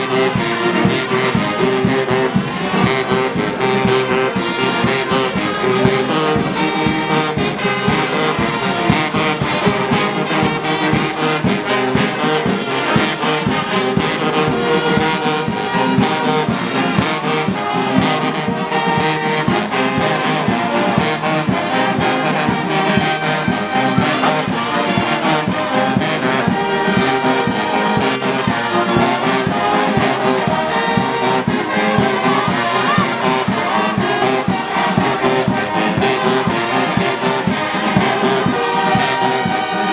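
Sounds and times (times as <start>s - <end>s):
brass band playing: 0.0s - 39.9s.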